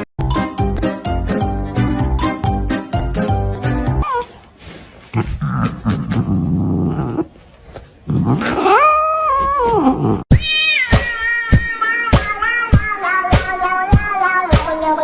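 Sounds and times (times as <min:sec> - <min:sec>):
cat growling and yowling: 0:08.1 - 0:15.0.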